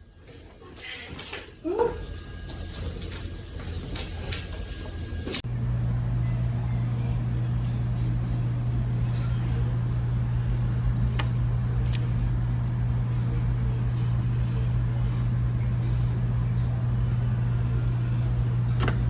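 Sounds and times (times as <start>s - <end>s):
low rumbling drone: 5.4s - 18.8s.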